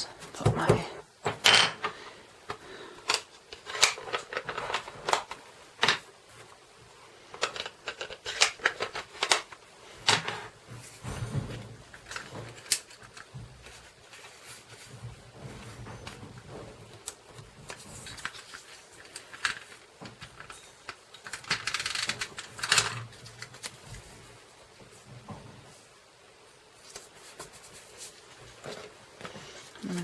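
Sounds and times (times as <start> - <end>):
cardstock clicks taps and rustles: 16.9 - 24.0.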